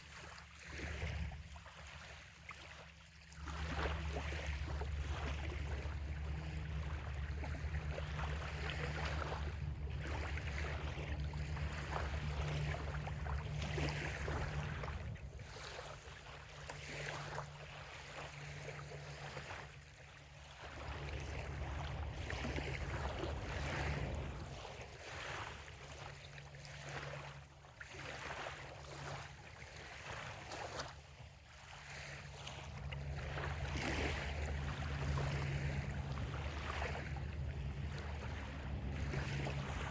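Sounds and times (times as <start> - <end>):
waves lapping on sandy shore: 0.0 - 39.9
low rumble: 20.8 - 24.8, 32.7 - 39.9.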